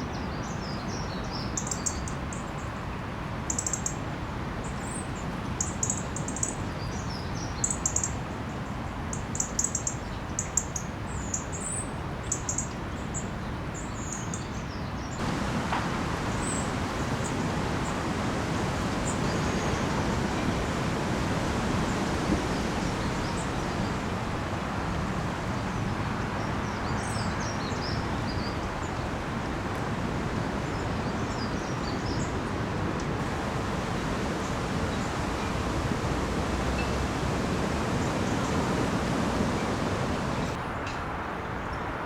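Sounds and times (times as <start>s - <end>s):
wind: 0.0s - 42.0s
rain: 15.2s - 40.6s.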